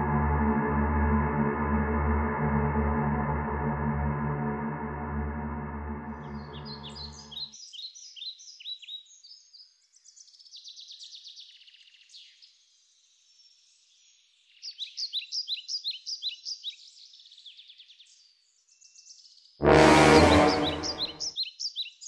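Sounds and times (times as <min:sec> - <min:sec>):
songbirds chirping: 0:06.2 - 0:19.4.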